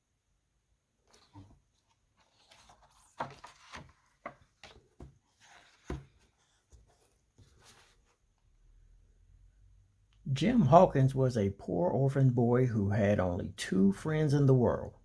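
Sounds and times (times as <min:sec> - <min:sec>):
book handling taps and rustles: 0:01.1 - 0:08.0.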